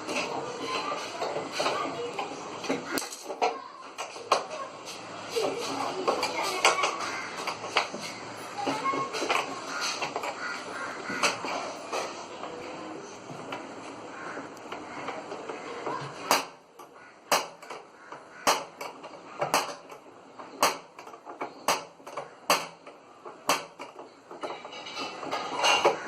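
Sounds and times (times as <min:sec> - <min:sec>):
rustling scraping: 0:04.0 - 0:12.4.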